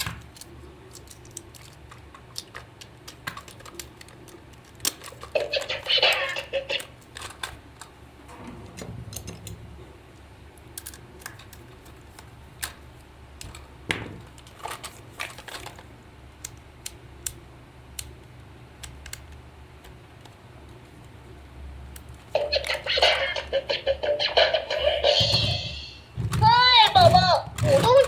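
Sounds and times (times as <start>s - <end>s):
small tools and plastic parts clicking: 0.0s - 7.9s, 10.6s - 12.8s, 14.3s - 20.4s
low steady hum: 0.0s - 28.0s.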